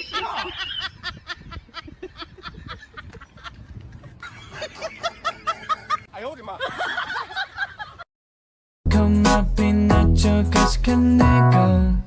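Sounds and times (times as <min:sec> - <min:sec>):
person laughing and snickering: 0:00.0 - 0:03.4.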